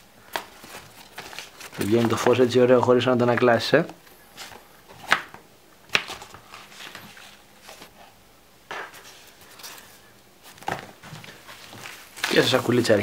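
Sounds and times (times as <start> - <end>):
packaging rustle: 0.3 - 2.4, 9.1 - 13.0.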